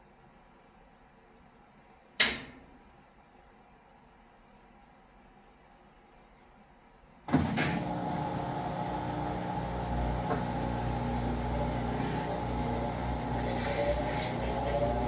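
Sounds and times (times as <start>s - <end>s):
washing machine spinning: 7.3s - 15.0s.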